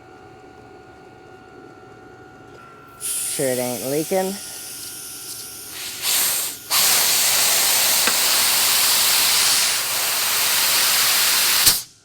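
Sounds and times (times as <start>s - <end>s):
compressed air hissing: 3.0s - 12.0s.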